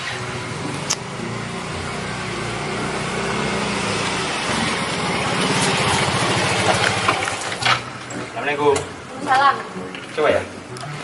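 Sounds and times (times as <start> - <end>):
motorcycle engine approaching: 0.0 - 8.4.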